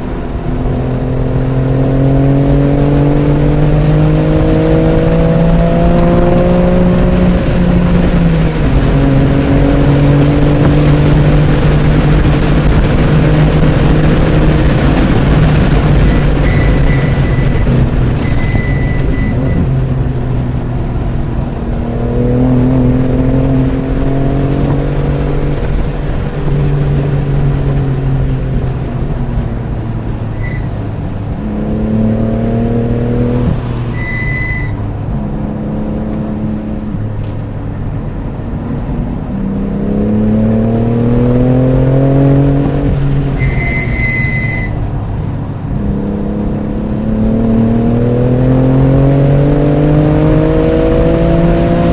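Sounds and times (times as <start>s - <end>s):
car engine accelerating: 0.0s - 51.9s
tyre squeals: 16.0s - 19.7s, 30.3s - 30.8s, 33.9s - 34.9s, 43.3s - 44.8s.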